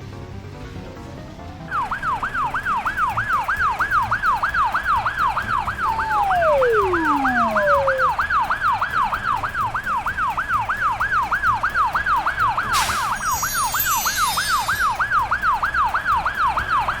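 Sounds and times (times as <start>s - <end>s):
cartoon siren yelping: 5.2s - 8.8s
falling whistle glides: 5.6s - 8.4s, 12.7s - 15.6s
descending twinkle of tones: 5.8s - 8.3s, 12.9s - 15.4s.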